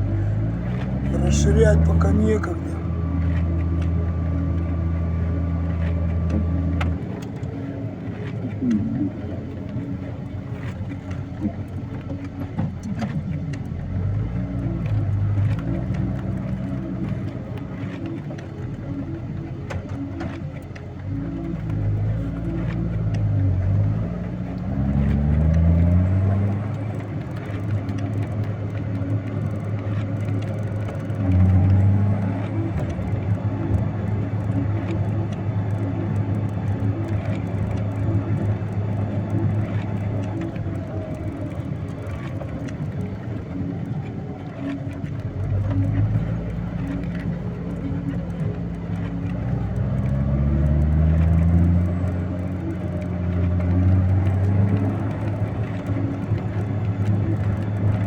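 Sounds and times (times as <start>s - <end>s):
heavy vehicle engine revving: 21.1s - 44.0s, 45.2s - 58.0s.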